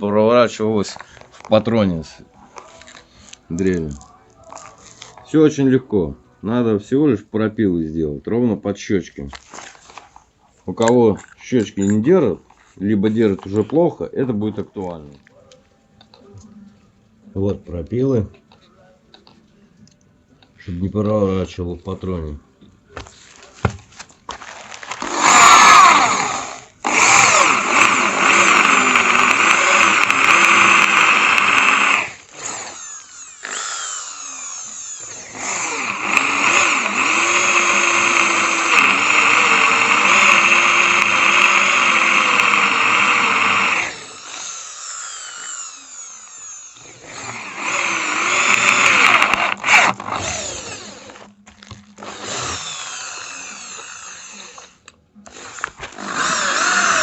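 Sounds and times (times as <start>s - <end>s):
electric drill running: 24.9s - 57.0s.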